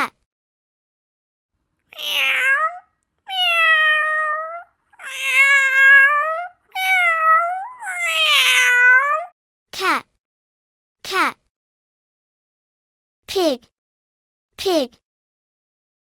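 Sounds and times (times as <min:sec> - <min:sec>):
cat meowing: 0:01.9 - 0:09.3.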